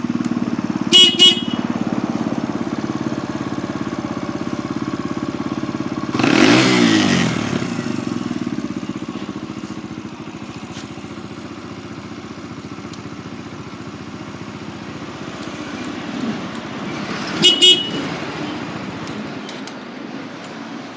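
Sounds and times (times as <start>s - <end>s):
motorcycle engine idling: 0.0s - 19.3s
motorcycle horn beeps: 0.3s - 8.6s, 17.3s - 18.9s.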